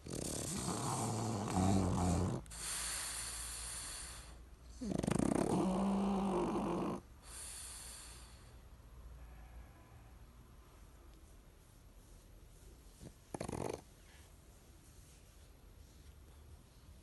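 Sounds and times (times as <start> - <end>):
dog snoring: 0.0 - 7.6, 13.0 - 13.9.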